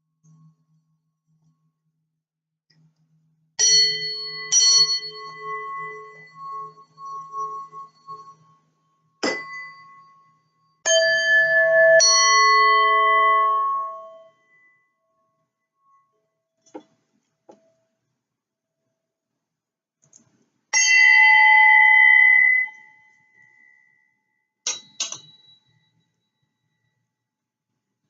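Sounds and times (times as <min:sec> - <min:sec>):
bells ringing: 0:20.8 - 0:23.0.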